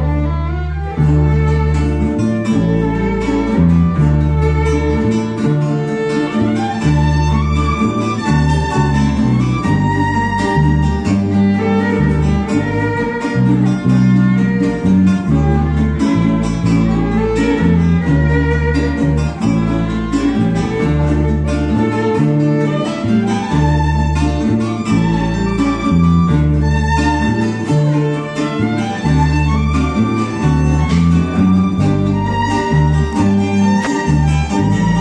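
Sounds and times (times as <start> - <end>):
bass marking the beat: 0.0 - 35.0
strummed cuatros and guitar: 0.0 - 35.0
violin: 0.0 - 35.0.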